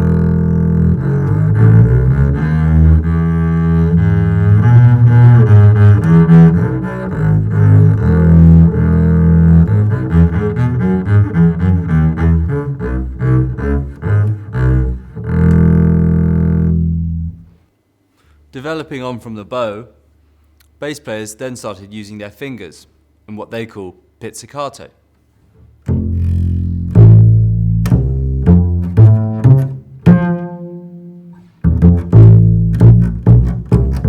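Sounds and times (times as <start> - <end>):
bowed double bass: 0.0 - 17.6, 25.6 - 34.0.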